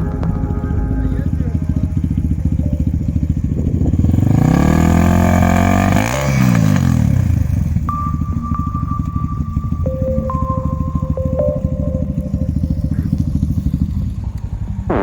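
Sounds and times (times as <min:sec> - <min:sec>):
quad bike engine revving: 0:00.7 - 0:07.9.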